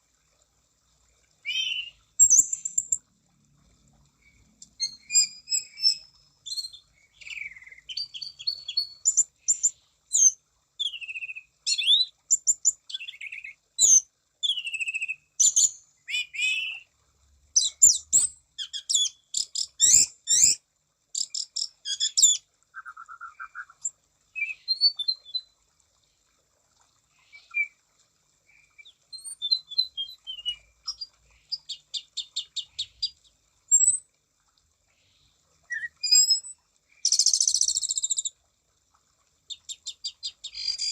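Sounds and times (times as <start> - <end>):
thrush singing whistled phrases: 1.4 - 2.9, 22.0 - 25.5, 28.5 - 30.7, 35.7 - 36.5, 40.4 - 40.9.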